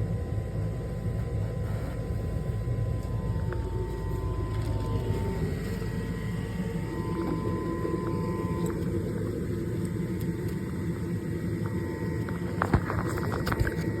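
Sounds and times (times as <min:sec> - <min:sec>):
constant whine: 0:00.0 - 0:14.0
furnace motor humming: 0:00.0 - 0:14.0.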